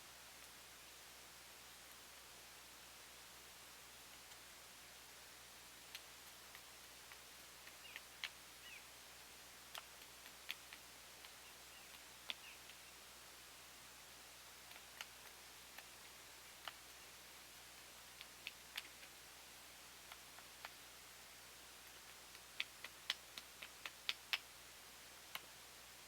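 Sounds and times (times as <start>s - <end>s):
faint sharp clicks: 4.1s - 4.4s, 5.8s - 8.8s, 9.7s - 12.9s, 14.6s - 17.1s, 18.1s - 19.2s, 20.0s - 20.8s, 21.8s - 25.6s.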